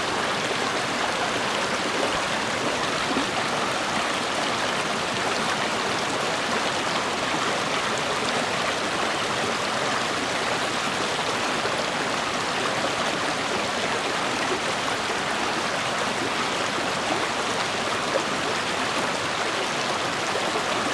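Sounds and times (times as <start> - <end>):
stream water rushing: 0.0 - 20.9.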